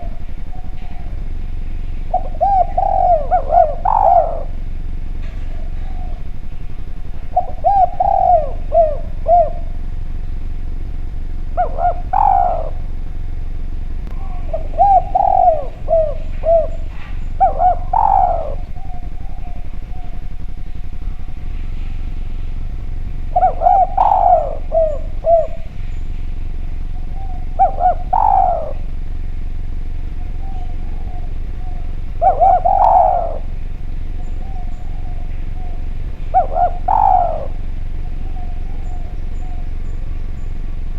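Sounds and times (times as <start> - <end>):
dove cooing: 0.0 - 40.9
low hum: 0.0 - 40.9.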